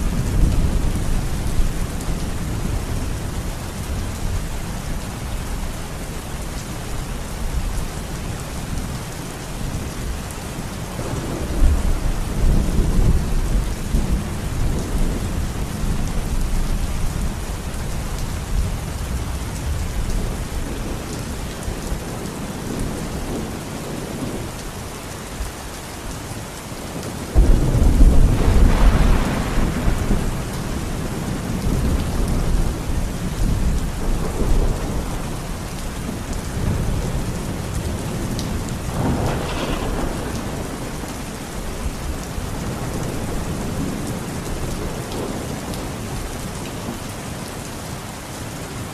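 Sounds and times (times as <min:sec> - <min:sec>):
steady rain falling: 0:00.0 - 0:48.9
thunder rumbling: 0:10.9 - 0:17.4, 0:27.3 - 0:46.2.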